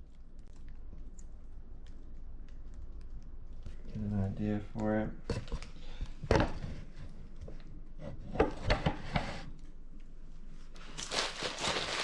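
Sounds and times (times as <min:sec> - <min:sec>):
packaging rustling: 0:10.8 - 0:12.0.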